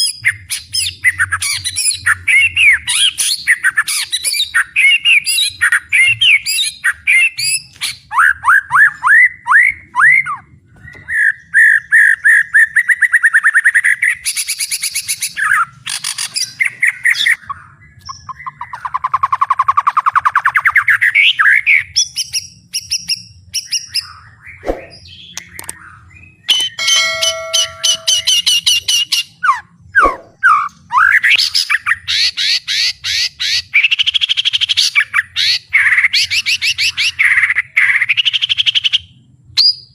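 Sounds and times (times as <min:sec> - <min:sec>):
shama singing with trills: 0:26.5 - 0:28.8.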